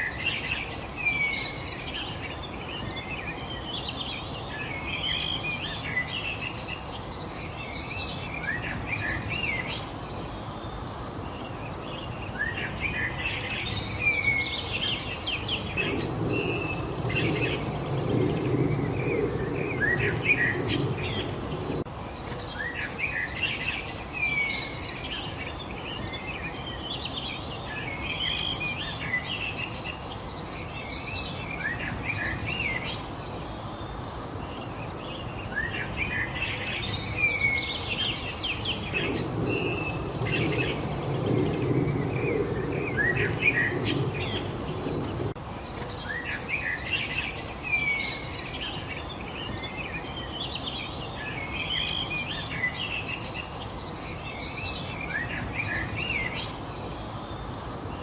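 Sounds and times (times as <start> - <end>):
songbirds chirping: 0.0 - 58.0
low background rumble: 14.9 - 21.9, 37.9 - 45.4.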